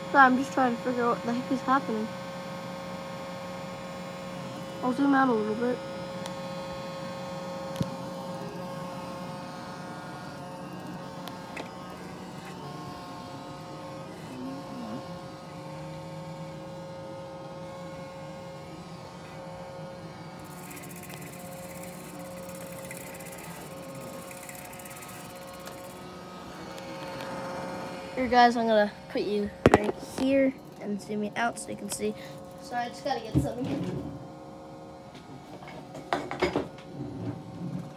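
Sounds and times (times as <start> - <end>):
robot vacuum motor hum: 0.0 - 36.0.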